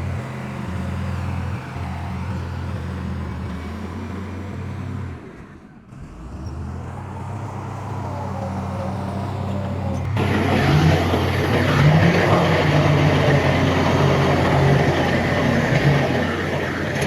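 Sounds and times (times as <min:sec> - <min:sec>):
heavy diesel engine droning: 0:00.0 - 0:17.0.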